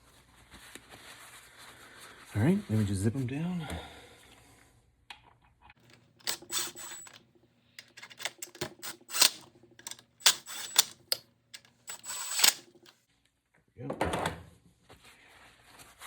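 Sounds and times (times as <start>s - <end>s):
ratchet wrench clicking: 6.2s - 7.2s, 7.8s - 12.9s.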